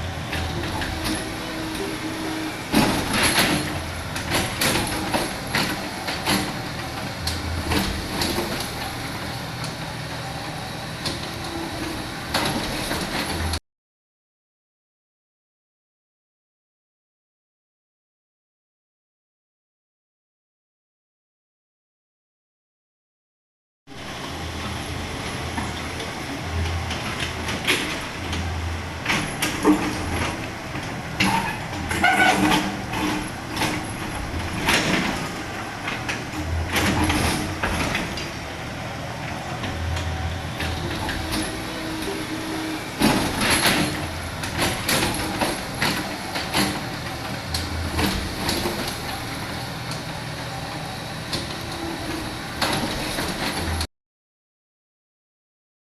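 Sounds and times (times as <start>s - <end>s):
excavator diesel engine drone: 0.0s - 13.6s, 23.9s - 53.9s.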